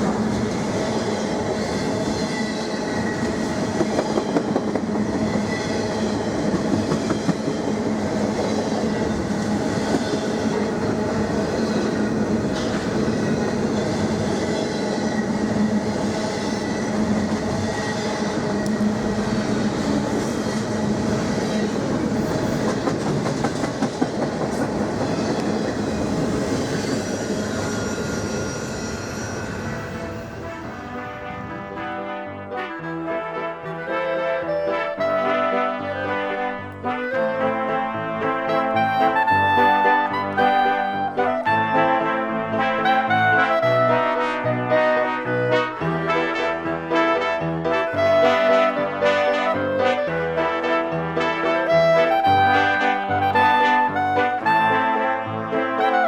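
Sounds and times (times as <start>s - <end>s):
freight train rolling past: 0.0s - 56.0s
wheels clicking over rail joints: 19.6s - 26.3s.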